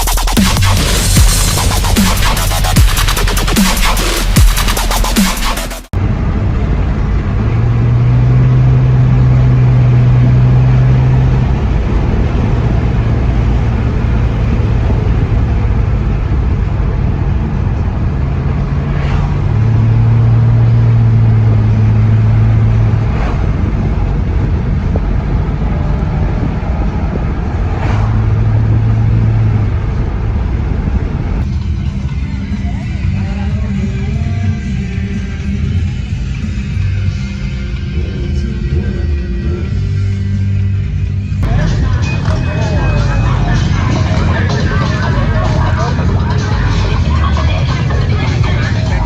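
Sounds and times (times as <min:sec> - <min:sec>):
car engines droning: 0:05.9 - 0:49.0
traffic rumble: 0:05.9 - 0:49.0
brief sharp sounds: 0:23.0 - 0:23.6.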